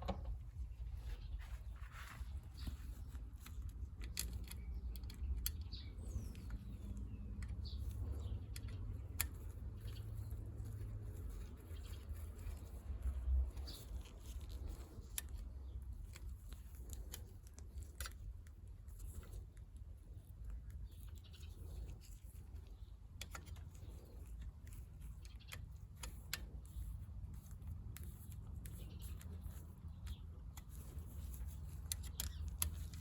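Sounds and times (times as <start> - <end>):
small parts clicking and tapping: 2.6 - 33.0.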